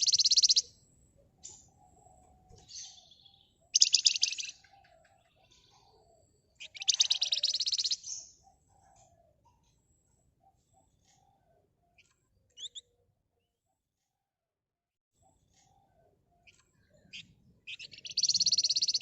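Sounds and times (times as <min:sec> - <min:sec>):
songbird rattling trills: 0:00.0 - 0:00.7, 0:03.7 - 0:04.6, 0:06.6 - 0:08.3, 0:16.4 - 0:19.0.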